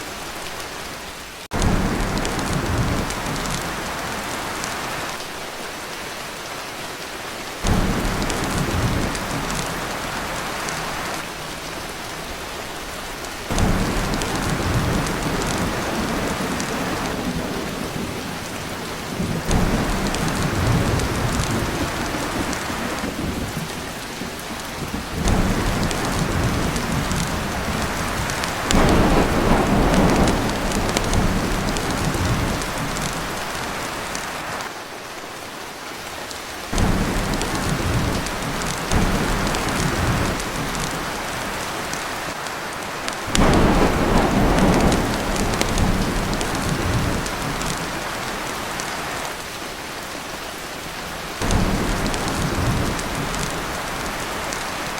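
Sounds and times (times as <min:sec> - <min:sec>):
heavy rain on a tin roof: 0:00.0 - 0:54.9
thunder rolling: 0:01.5 - 0:04.1, 0:07.6 - 0:10.4, 0:13.5 - 0:33.7, 0:36.7 - 0:42.0, 0:43.3 - 0:48.2, 0:51.4 - 0:54.4.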